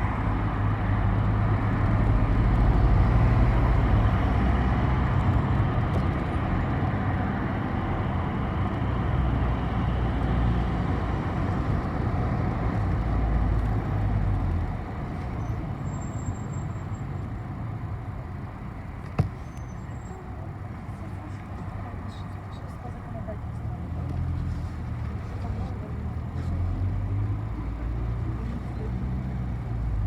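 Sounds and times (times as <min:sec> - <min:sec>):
bus engine drone: 0:00.0 - 0:30.0
road noise: 0:00.0 - 0:30.0.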